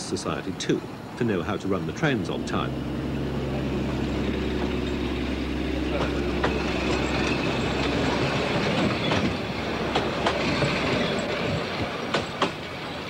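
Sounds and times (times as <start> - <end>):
train rolling past: 0.0 - 13.0
wheels clicking over rail joints: 0.0 - 13.0.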